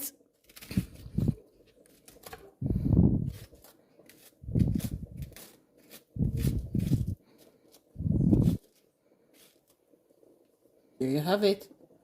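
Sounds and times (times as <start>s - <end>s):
spoon scraping zucchini: 3.2s - 9.8s.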